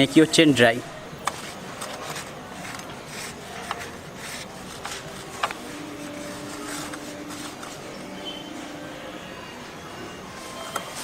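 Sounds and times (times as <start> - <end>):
cloth rubbing along a chain: 1.2 - 8.7.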